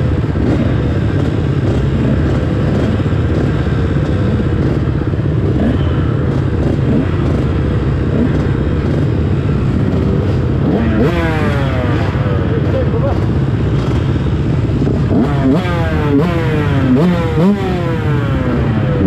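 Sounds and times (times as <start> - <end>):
motocross bike engines revving: 0.0 - 19.0.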